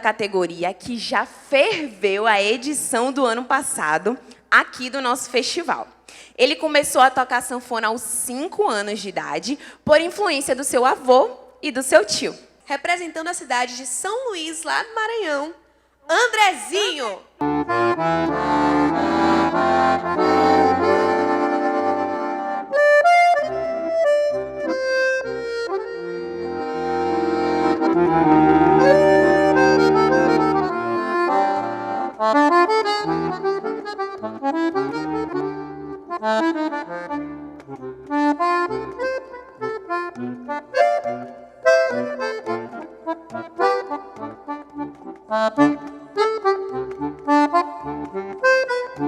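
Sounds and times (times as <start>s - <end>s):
piano accordion playing: 17.4s - 49.0s.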